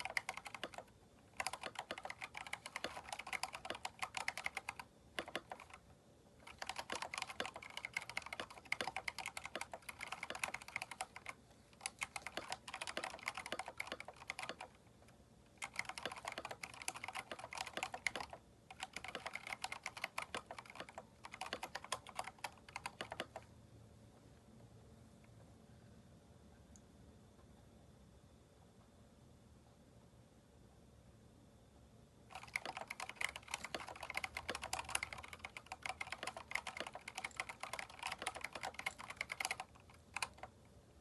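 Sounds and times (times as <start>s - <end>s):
mechanical keyboard typing: 0.0s - 5.8s, 6.4s - 14.8s, 15.6s - 23.5s, 32.3s - 40.6s.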